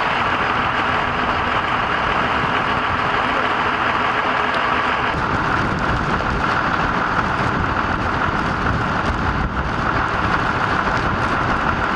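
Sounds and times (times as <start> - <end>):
road traffic: 0.0 - 11.9
wind rushing: 5.0 - 11.9.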